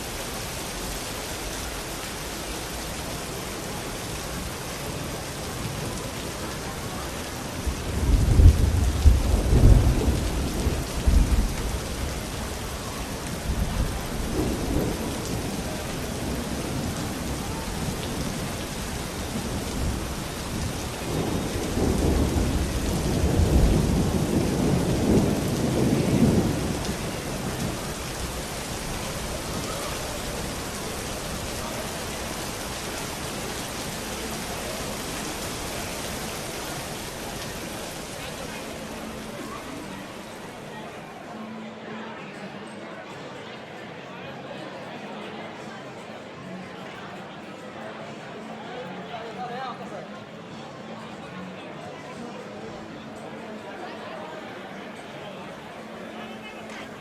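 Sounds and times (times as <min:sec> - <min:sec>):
heavy rain: 0:00.0 - 0:57.0
thunder rumbling: 0:05.6 - 0:40.3.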